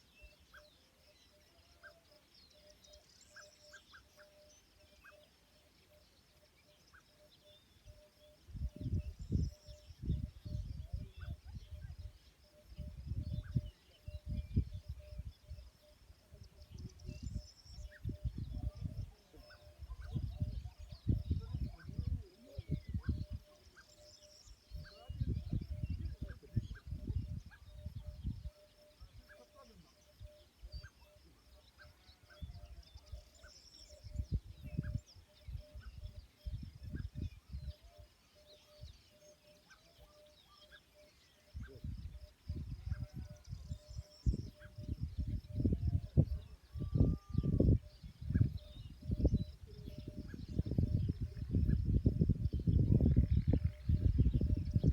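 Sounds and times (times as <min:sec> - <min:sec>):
birds chirping: 0:00.0 - 0:54.9
wind buffeting the microphone: 0:07.9 - 0:29.4, 0:32.2 - 0:38.0, 0:41.5 - 0:54.9.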